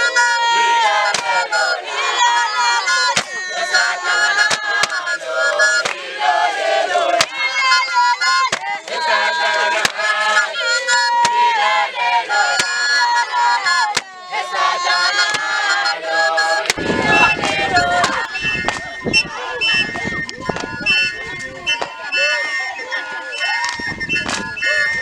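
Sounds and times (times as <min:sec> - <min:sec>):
group singing and chanting: 0:00.0 - 0:25.0
high shouted cries: 0:00.0 - 0:25.0.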